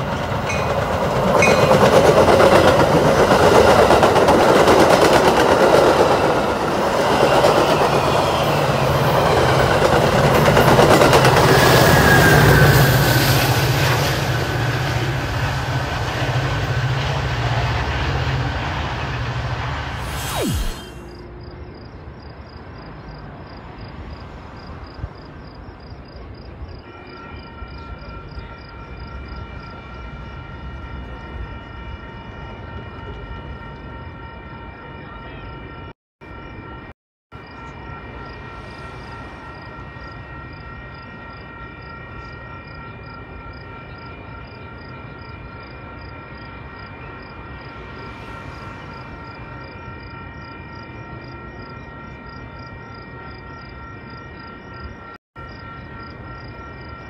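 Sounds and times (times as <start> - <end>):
train rumble: 0.0 - 20.5
high multi-tone hum: 20.0 - 21.2.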